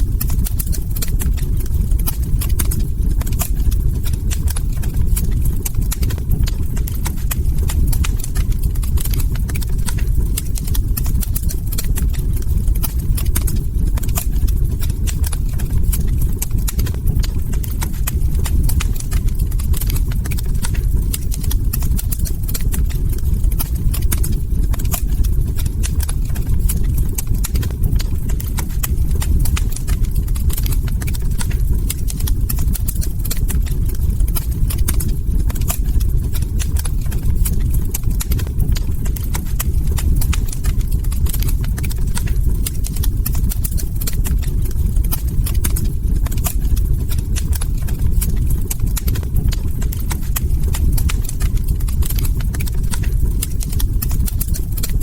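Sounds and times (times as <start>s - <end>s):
log fire crackling: 0.0s - 55.0s
low rumble of burning wood: 0.0s - 55.0s.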